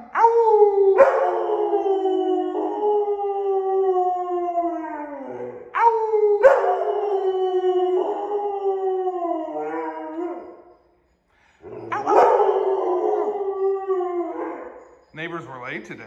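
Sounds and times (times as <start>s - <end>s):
dog howling: 0.0s - 10.8s, 11.6s - 15.1s.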